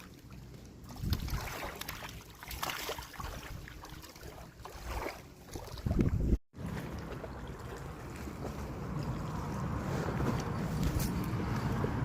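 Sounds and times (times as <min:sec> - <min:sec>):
wind buffeting microphone: 0:00.9 - 0:01.6, 0:05.7 - 0:06.4.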